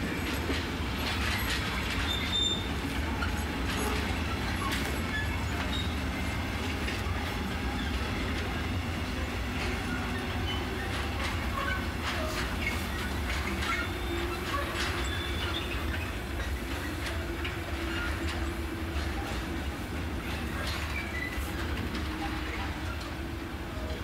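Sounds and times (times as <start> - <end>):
wheel squeaks: 1.0 - 6.9, 9.6 - 19.4, 20.3 - 22.0.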